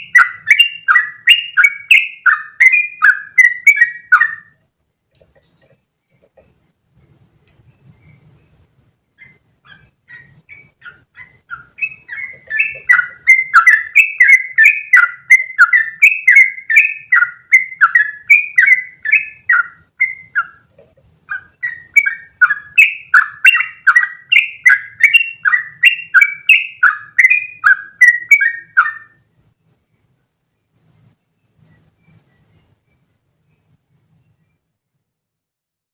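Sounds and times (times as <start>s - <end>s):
bulbul singing chattering notes: 10.1s - 20.7s, 21.3s - 29.2s.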